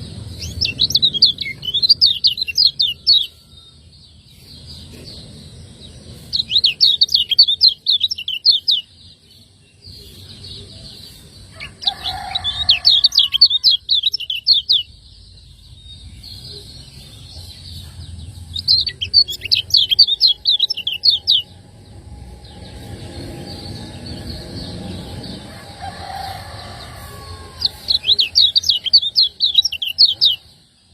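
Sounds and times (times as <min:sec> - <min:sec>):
bird chirping song: 0:00.0 - 0:30.9.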